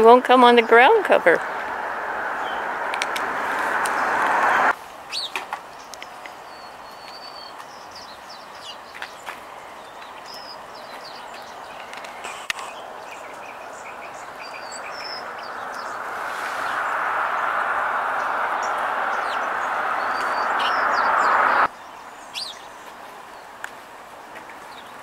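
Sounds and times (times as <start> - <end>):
faint rushing background: 0.0 - 4.8, 12.7 - 21.7
songbirds chirping: 0.0 - 25.0
loud rushing noise: 0.5 - 4.8, 14.2 - 21.7.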